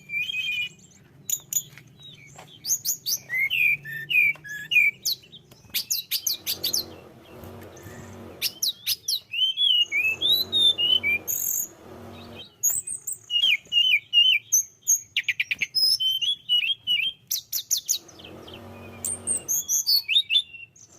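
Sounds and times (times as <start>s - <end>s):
songbird singing: 0.0s - 20.9s
low hum: 6.4s - 8.5s, 9.9s - 12.5s, 18.0s - 19.6s.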